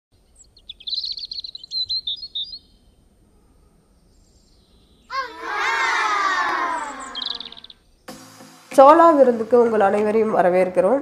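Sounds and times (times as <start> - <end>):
high bird chirps: 0.2 - 2.9, 4.2 - 8.0.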